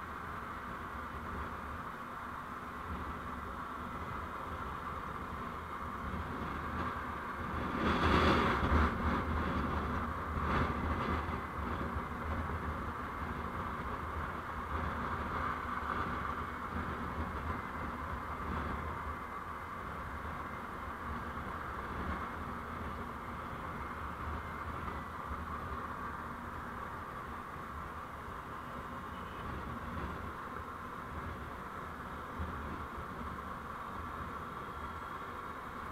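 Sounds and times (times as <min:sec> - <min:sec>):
road and engine noise: 0:00.0 - 0:35.9.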